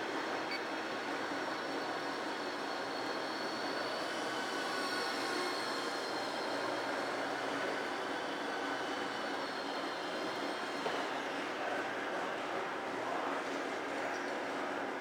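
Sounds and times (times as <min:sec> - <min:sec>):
model aircraft motor whine: 0:01.6 - 0:10.8.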